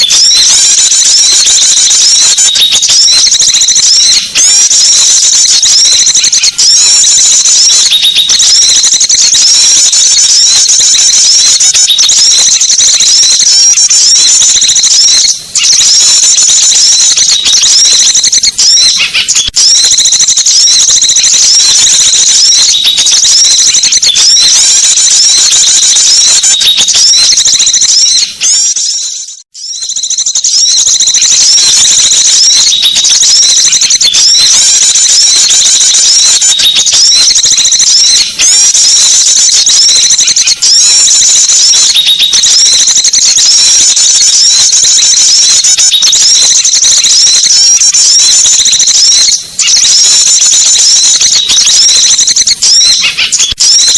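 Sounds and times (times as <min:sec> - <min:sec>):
songbirds chirping and twittering: 0:00.0 - 0:19.7, 0:21.2 - 0:39.4.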